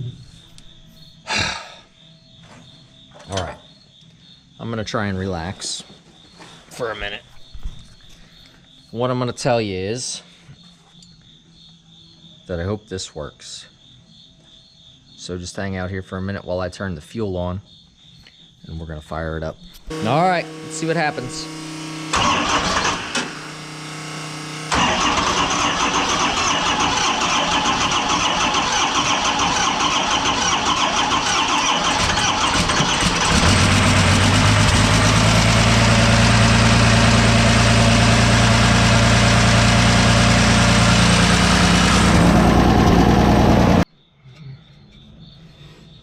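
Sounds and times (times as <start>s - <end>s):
diesel engine cranking and running: 19.9s - 43.8s.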